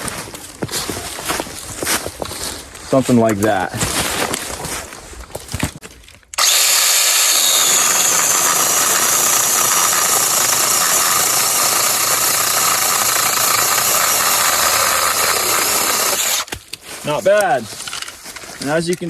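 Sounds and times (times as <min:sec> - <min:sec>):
cordless chainsaw cutting wood: 0:06.4 - 0:16.5.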